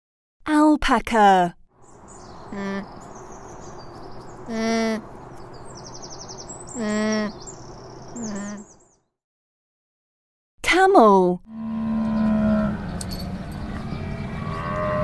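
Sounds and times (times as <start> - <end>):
small birds chirping: 1.8 - 9.2
alpaca humming: 2.5 - 3.0, 4.4 - 5.1, 6.7 - 7.4, 8.2 - 8.7, 13.6 - 15.0.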